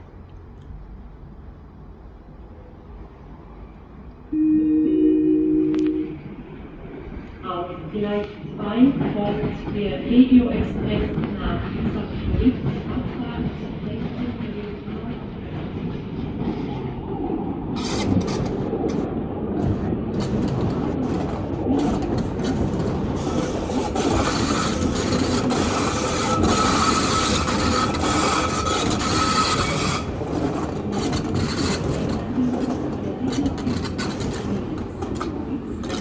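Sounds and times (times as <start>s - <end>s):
train wheels rumbling over rails: 6.4s - 36.0s
hissing rasp with wheel squeal: 25.6s - 30.1s.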